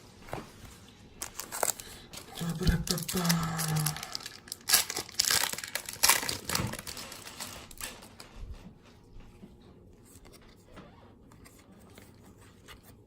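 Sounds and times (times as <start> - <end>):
wrapper crinkling: 1.2 - 8.4.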